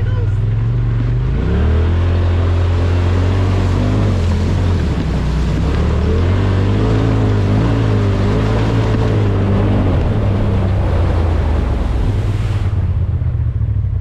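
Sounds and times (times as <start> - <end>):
utility vehicle engine running: 0.0 - 14.0.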